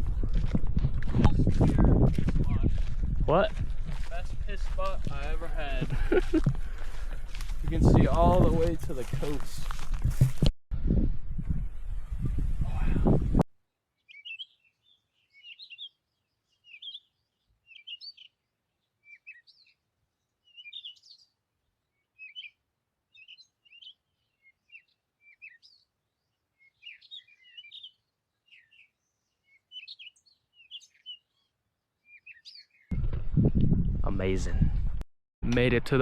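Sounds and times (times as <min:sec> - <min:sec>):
birds chirping faintly: 0:13.7 - 0:32.9.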